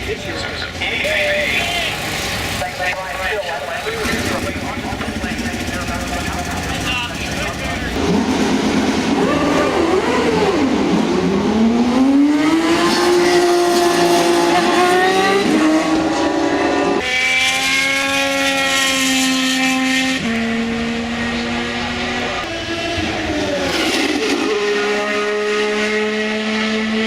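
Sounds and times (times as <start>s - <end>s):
racing car engine at high revs: 0.7s - 27.0s.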